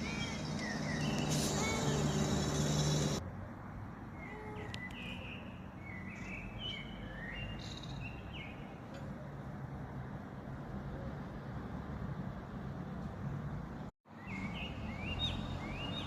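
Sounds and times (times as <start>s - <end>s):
small birds chirping: 0.0s - 3.2s, 4.2s - 8.8s.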